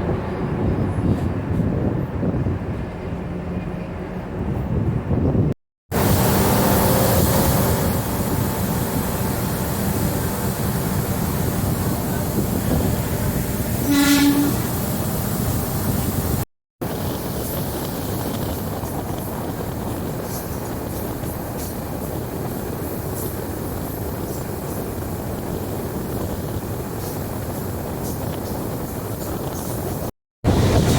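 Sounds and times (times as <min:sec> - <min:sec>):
train running on rails: 0:00.0 - 0:30.9
train horn blast: 0:05.9 - 0:16.4.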